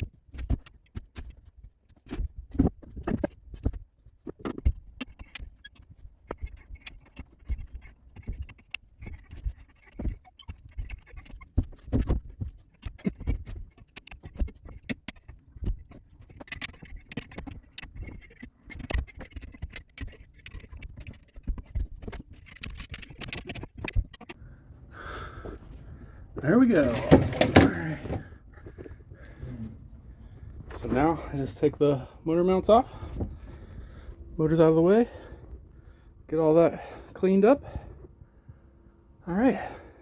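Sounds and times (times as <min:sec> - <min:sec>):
tools and parts knocking and rattling: 0:00.0 - 0:24.4, 0:26.4 - 0:29.0.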